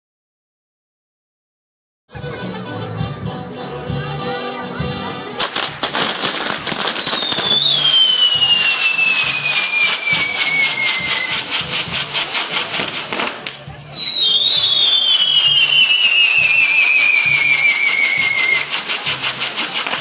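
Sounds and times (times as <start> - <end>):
crackle of sparks: 5.4 - 20.0
firework whistle falling in pitch: 6.3 - 12.0, 12.8 - 20.0.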